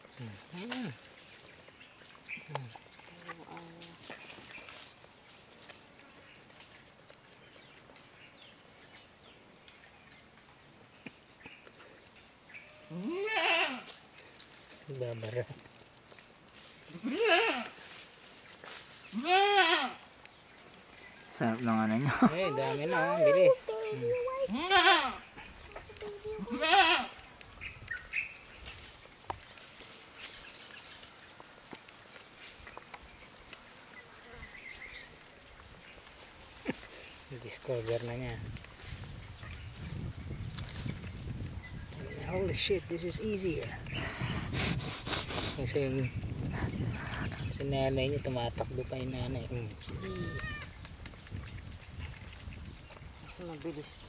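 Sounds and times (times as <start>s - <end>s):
goat bleating: 12.9s - 13.9s, 16.9s - 17.8s, 19.1s - 20.0s, 24.2s - 25.2s, 26.3s - 27.2s, 50.0s - 50.7s.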